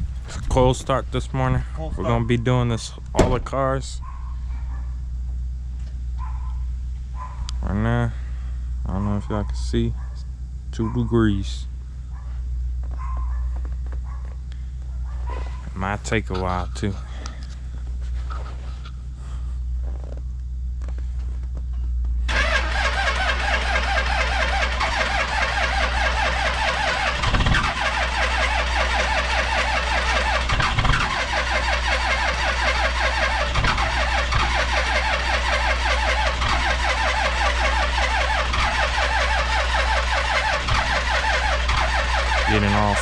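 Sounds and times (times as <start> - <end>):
car engine starting and running: 22.2 - 43.0.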